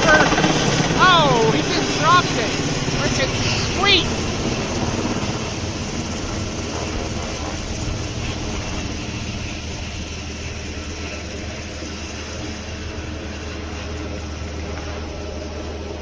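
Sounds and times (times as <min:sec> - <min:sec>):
helicopter rotors and engines: 0:00.0 - 0:16.0.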